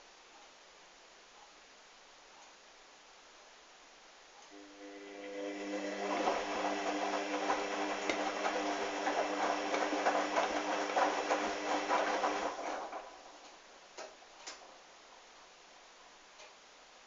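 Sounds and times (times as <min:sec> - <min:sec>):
washing machine motor hum: 0:04.5 - 0:13.6.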